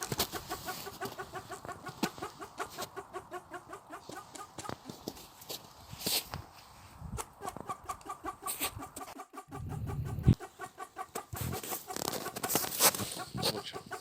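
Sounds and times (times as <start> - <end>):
bird calling in rapid notes: 7.4 - 14.0.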